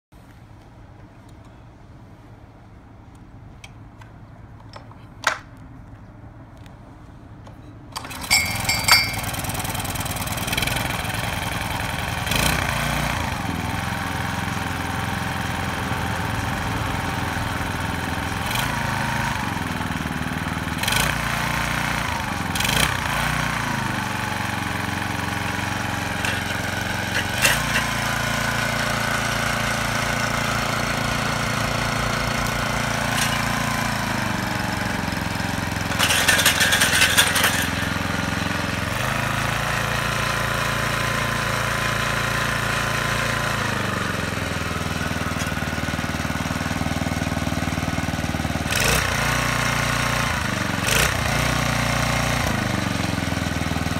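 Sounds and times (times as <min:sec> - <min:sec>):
tiller engine running: 0:07.9 - 0:53.9
loud rattling: 0:08.0 - 0:12.3, 0:23.0 - 0:39.2.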